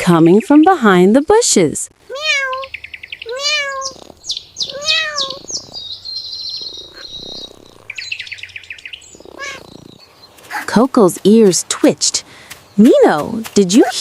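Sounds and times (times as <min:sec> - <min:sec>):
kitten meowing: 0:02.1 - 0:05.8, 0:09.4 - 0:09.6
bird chirps and trills: 0:02.1 - 0:14.0.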